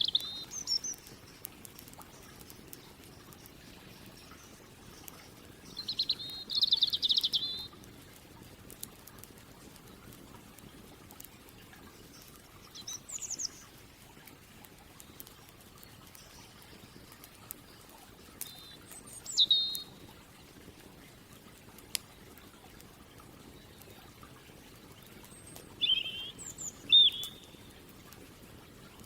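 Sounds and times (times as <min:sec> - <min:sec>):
songbird chirps: 0:00.0 - 0:07.8, 0:11.3 - 0:20.5, 0:22.0 - 0:27.9
crackling campfire: 0:00.0 - 0:29.0.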